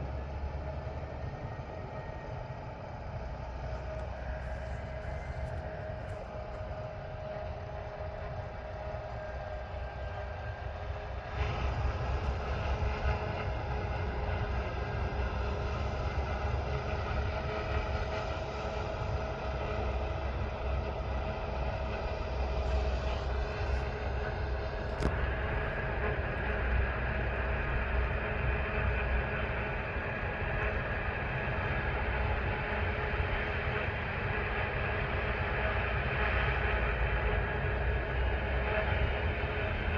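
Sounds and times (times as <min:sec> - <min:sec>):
low diesel drone: 0:00.0 - 0:39.9
machinery whining tones: 0:01.3 - 0:34.7.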